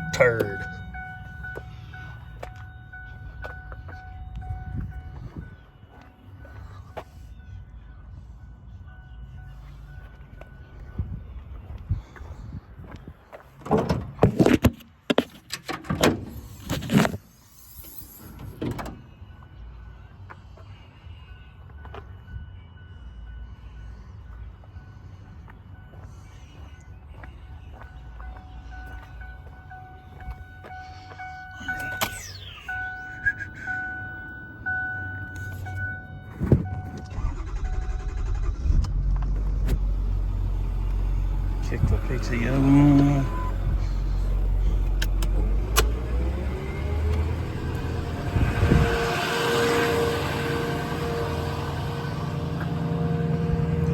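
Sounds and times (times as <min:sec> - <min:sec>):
two-tone warning chime: 0:00.0 - 0:11.8, 0:17.7 - 0:38.4, 0:40.5 - 0:44.8
diesel engine rumbling: 0:00.0 - 0:53.9
metal doors and latches clanking: 0:13.6 - 0:16.6, 0:18.2 - 0:19.2.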